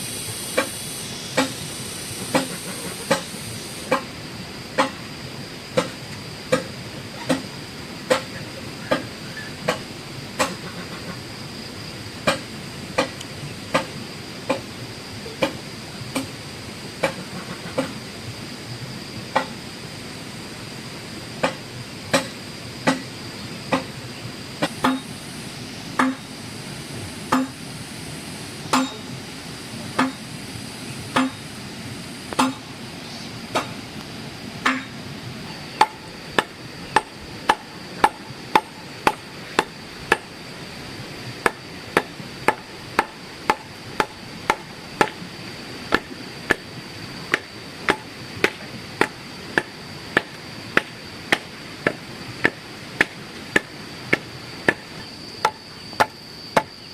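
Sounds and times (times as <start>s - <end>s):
hand tool striking blows: 21.4s - 23.1s, 24.6s - 25.1s, 26.0s - 26.2s, 27.3s - 27.6s, 28.7s - 29.1s, 30.0s - 30.2s, 31.2s - 31.4s, 32.4s - 32.7s, 34.6s - 35.0s, 35.8s - 40.3s, 47.3s - 56.7s.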